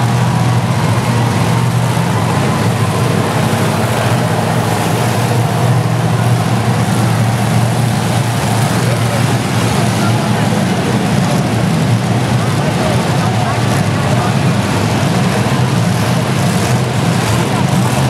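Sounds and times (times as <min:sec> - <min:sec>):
truck engines droning: 0:00.0 - 0:18.0.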